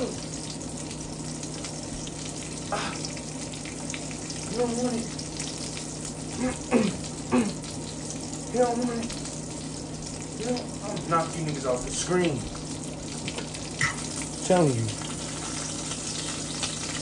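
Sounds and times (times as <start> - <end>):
food sizzling in a pan: 0.0 - 17.0
person making voiced sounds: 4.4 - 5.2, 6.3 - 7.6, 8.5 - 9.2, 10.4 - 12.4.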